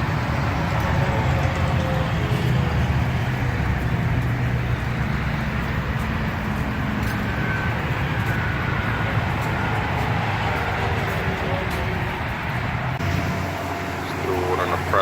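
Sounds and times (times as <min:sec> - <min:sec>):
low motor rumble: 0:00.0 - 0:15.0.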